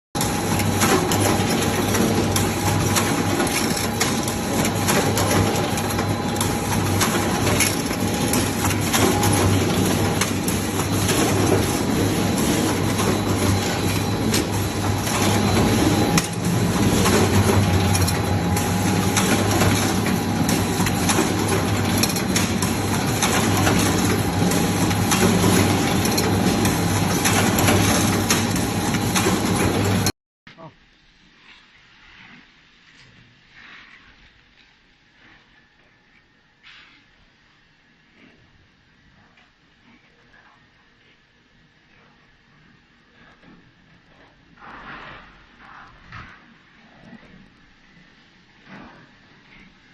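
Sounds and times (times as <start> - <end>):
machinery motor hum: 0.2 - 30.1.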